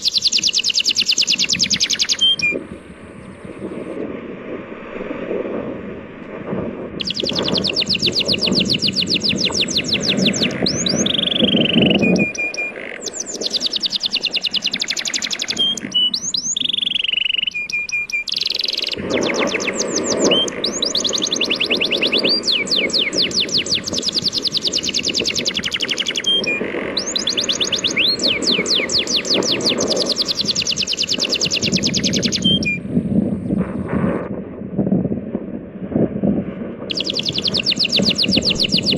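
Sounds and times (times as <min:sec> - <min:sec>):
songbird trilling: 0:00.0 - 0:02.6, 0:07.0 - 0:32.8, 0:36.9 - 0:38.9
sea waves rushing: 0:18.3 - 0:32.8.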